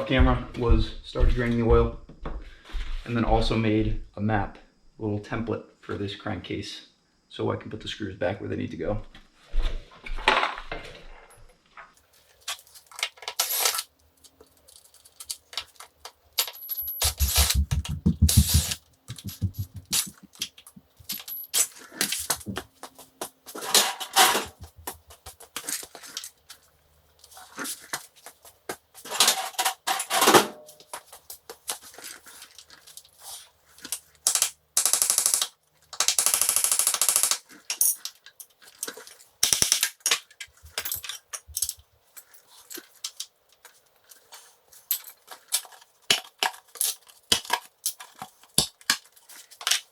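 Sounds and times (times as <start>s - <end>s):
rapid clicking or rattling: 16.7s - 20.5s
hand tools clinking on metal: 21.0s - 22.3s.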